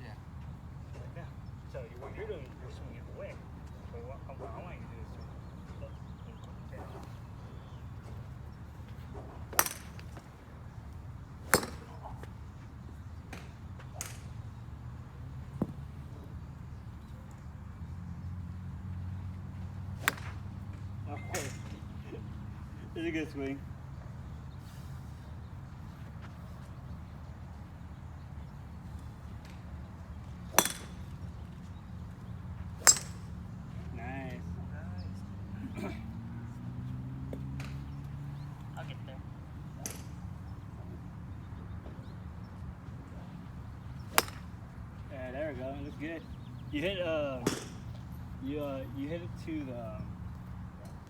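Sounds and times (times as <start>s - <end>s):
golf clubs striking balls: 9.1s - 10.5s, 11.3s - 12.4s, 13.3s - 14.4s, 19.8s - 23.4s, 30.5s - 31.7s, 32.8s - 34.0s, 39.7s - 40.4s, 44.0s - 46.0s, 46.9s - 49.8s
golf club striking ball: 9.6s - 10.1s, 11.4s - 12.0s, 20.0s - 21.7s, 30.5s - 31.2s, 32.8s - 33.3s, 44.0s - 44.6s, 47.4s - 47.8s.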